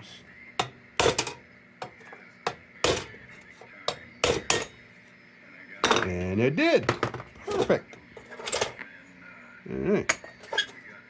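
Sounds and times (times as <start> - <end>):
hammer tapping sheet metal: 0.6 - 3.2, 3.9 - 4.8.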